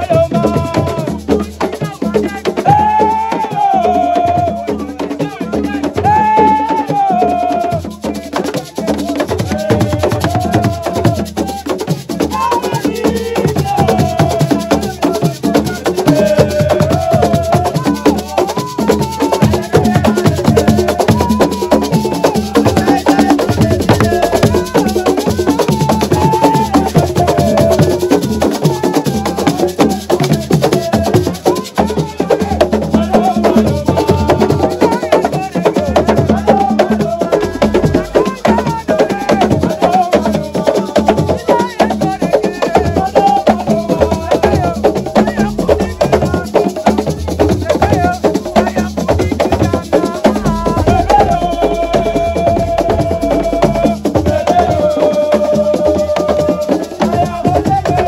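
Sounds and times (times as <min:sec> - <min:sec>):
fast drum percussion: 0:00.0 - 0:58.0
person singing: 0:00.0 - 0:58.0.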